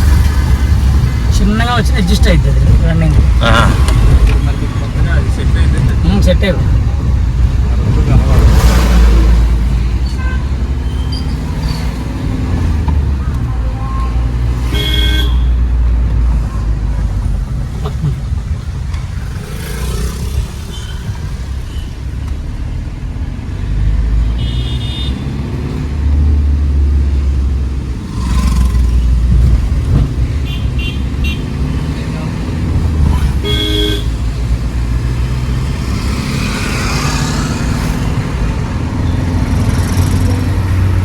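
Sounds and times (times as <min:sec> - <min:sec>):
car engine and road noise: 0:00.0 - 0:41.0
vehicle horns honking: 0:10.0 - 0:11.5, 0:14.5 - 0:15.7, 0:20.6 - 0:22.0, 0:24.2 - 0:25.4, 0:30.4 - 0:31.6, 0:33.2 - 0:34.3.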